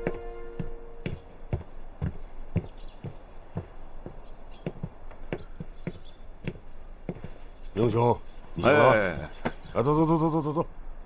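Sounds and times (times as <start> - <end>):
footsteps walking: 0.0 - 7.7.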